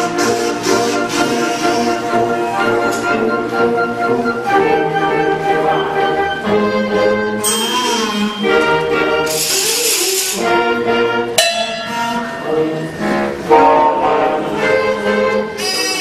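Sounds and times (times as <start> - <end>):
concert band playing: 2.8 - 15.6.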